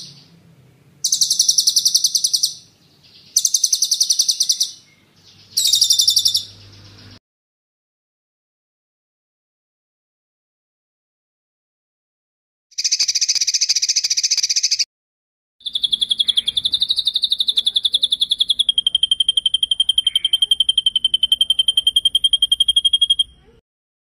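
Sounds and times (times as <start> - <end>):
buzzy bird trill: 0.0 - 0.4, 1.0 - 7.2, 12.8 - 14.9, 15.6 - 23.6
fast high bird trill: 1.0 - 7.2, 12.8 - 14.8, 15.6 - 23.5.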